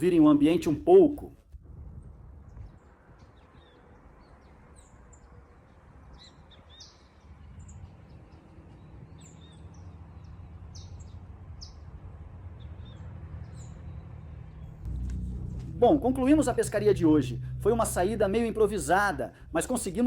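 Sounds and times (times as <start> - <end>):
small birds chirping: 2.4 - 14.9
steady low rumble: 13.8 - 20.0.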